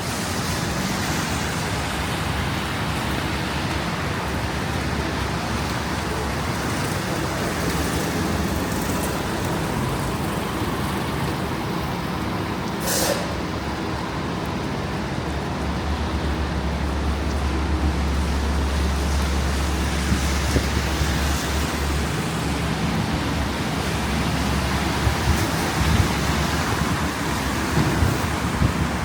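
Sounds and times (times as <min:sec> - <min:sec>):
city traffic noise: 0:00.0 - 0:29.0
short hiss: 0:12.8 - 0:13.4
gusty wind on microphone: 0:18.0 - 0:29.0.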